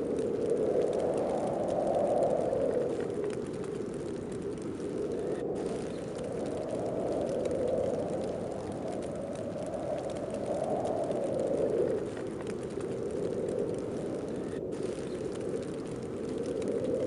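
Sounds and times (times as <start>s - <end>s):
snowstorm wind blowing: 0.0s - 17.0s.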